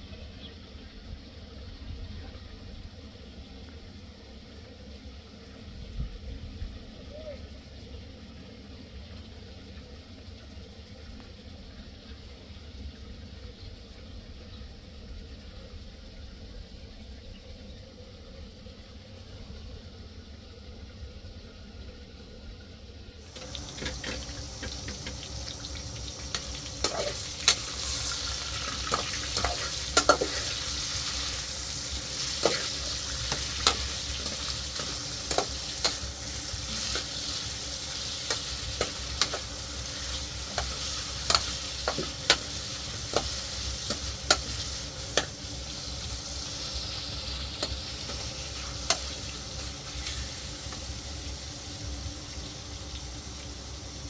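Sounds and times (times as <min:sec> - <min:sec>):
sizzling hiss: 0:23.2 - 0:54.0.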